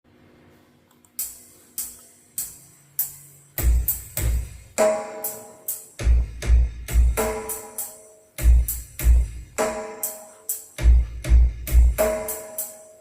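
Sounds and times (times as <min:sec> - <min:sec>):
sharp percussion hits: 0:01.2 - 0:12.9
music through car speakers: 0:01.2 - 0:13.0
heavy bass drum kicks: 0:03.6 - 0:05.2, 0:06.0 - 0:07.6, 0:08.4 - 0:09.9, 0:10.8 - 0:12.4.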